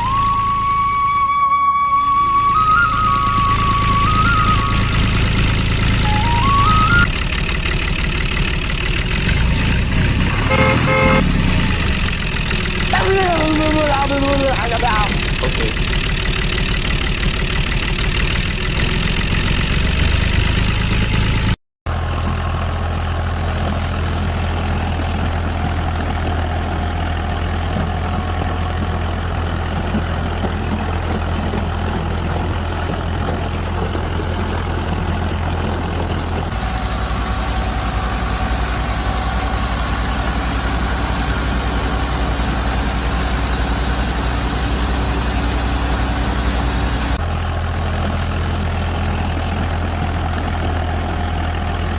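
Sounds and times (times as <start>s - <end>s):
small motor humming: 2.2s - 21.4s.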